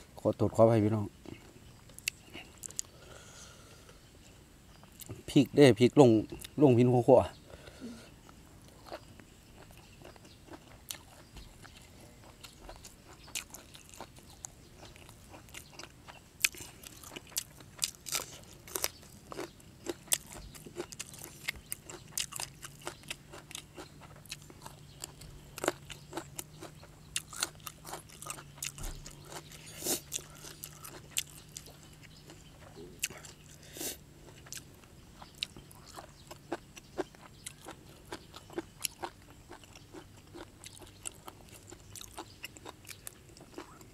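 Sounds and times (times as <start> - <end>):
crisp chewing crunches: 8.2 - 43.9.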